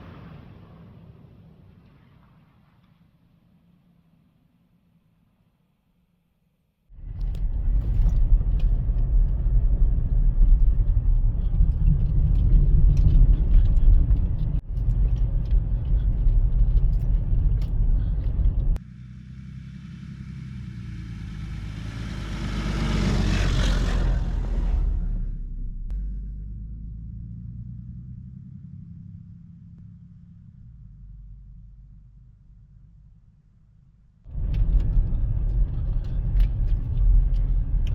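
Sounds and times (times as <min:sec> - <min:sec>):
car road and engine rumble: 0:06.9 - 0:37.9
vehicle passing: 0:18.0 - 0:31.2.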